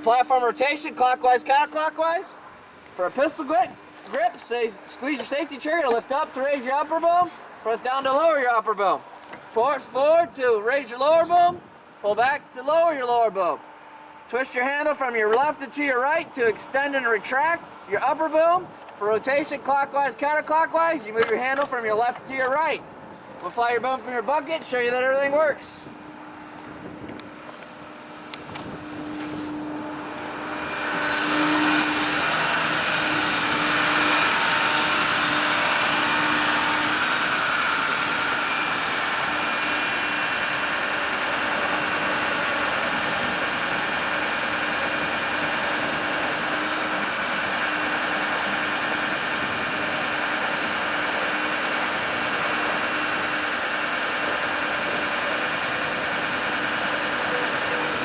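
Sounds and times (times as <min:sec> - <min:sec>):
constant hum: 0:00.0 - 0:58.0
truck engine running: 0:32.2 - 0:58.0.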